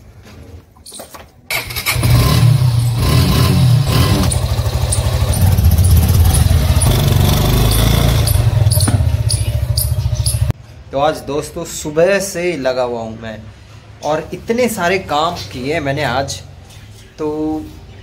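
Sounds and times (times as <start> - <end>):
motorcycle engine starting and revving: 1.5 - 10.6.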